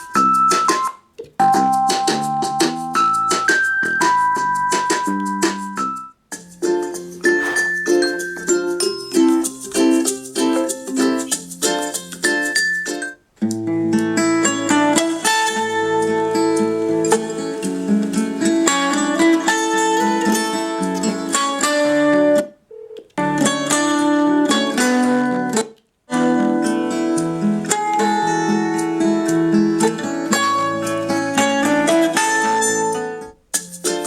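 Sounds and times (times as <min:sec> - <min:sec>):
guitar music through small speaker: 0:09.4 - 0:22.5, 0:23.2 - 0:34.0.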